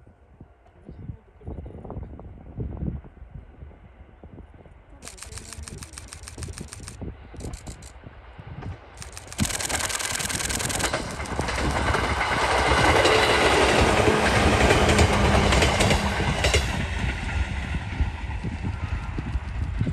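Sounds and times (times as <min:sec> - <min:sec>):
sharp wheel clicks: 0:05.0 - 0:07.9, 0:09.0 - 0:12.0
electric train passing: 0:05.0 - 0:19.9
wheels clacking over rail joints: 0:09.0 - 0:16.8.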